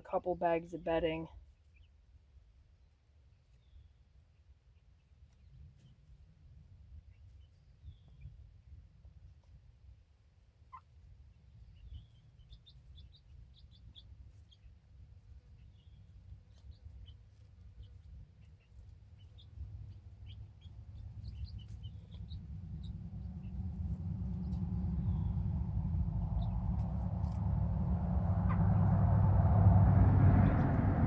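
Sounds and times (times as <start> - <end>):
chicks peeping: 11.6 - 31.0
low rumble: 21.2 - 31.0.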